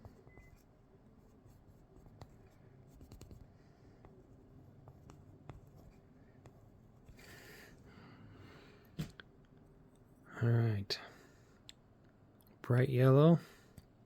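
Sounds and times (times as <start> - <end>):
pencil scratching on paper: 0.0 - 7.2.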